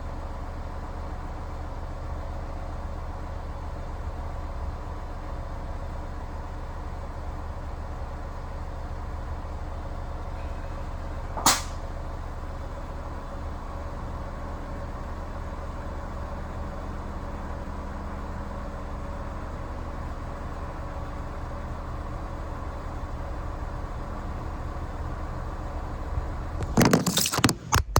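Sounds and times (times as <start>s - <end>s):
steady mechanical hum: 7.6s - 27.9s
sharp air release burst: 11.5s - 11.8s.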